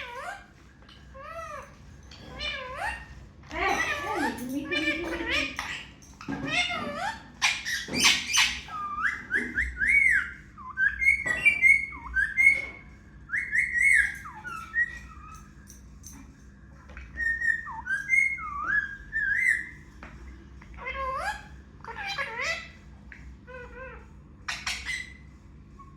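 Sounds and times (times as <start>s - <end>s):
parrot whistling and chirping: 0.0s - 3.2s, 4.8s - 16.2s, 17.0s - 19.9s, 20.8s - 22.8s, 23.5s - 25.9s.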